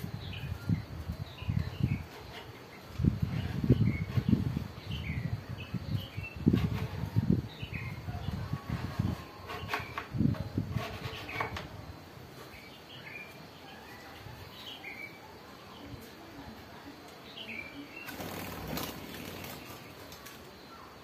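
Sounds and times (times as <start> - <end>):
birds chirping: 0.0 - 21.0
wings flapping: 18.0 - 20.5.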